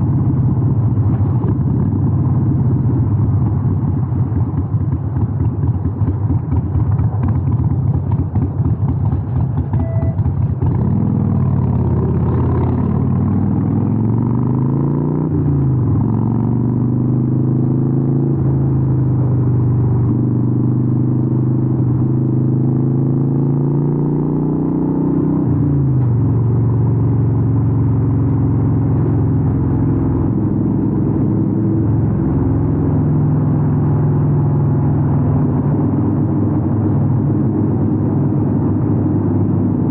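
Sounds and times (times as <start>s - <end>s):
motorcycle engine rumbling: 0.0s - 14.6s.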